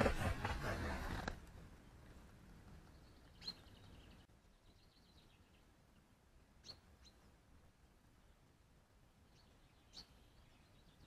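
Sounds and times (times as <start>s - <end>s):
faint bird chirps: 2.9s - 7.4s, 9.2s - 11.0s.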